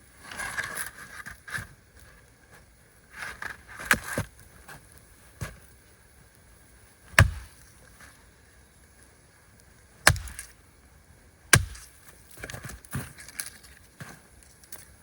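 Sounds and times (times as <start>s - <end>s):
axe chopping wood: 7.2s - 7.6s, 10.0s - 10.5s, 11.5s - 12.0s.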